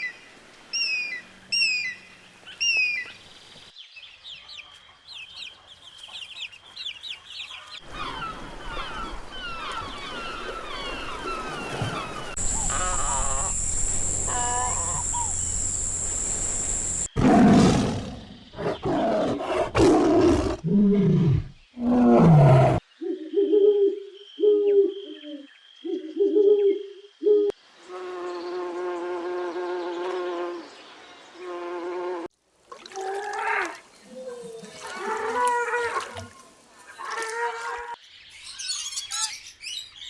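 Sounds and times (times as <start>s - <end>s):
faint chirps: 7.9s - 17.1s
long held animal call: 11.2s - 17.1s
high insect-like buzz: 12.3s - 17.1s, 27.8s - 30.7s
short pitched animal calls: 12.3s - 17.1s
animal roaring calls: 12.3s - 22.8s.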